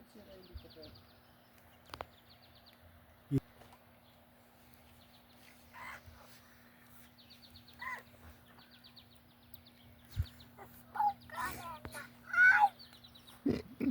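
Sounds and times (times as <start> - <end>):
bird short calls: 7.7 - 8.8
bird high rapid trill: 10.2 - 13.4.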